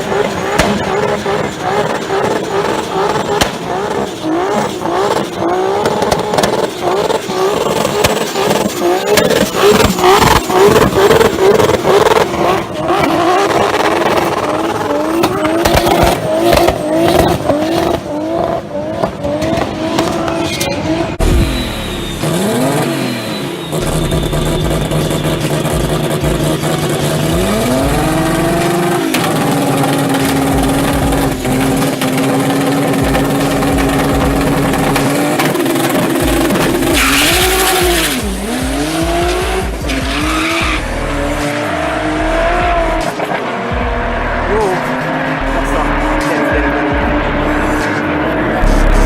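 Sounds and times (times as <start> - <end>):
car engine revving: 0.0 - 49.0
tyres squealing: 20.2 - 43.1.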